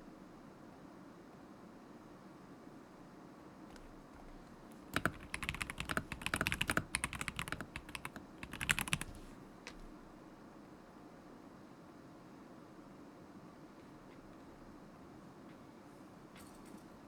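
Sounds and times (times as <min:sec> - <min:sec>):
mechanical keyboard typing: 0:04.7 - 0:09.3.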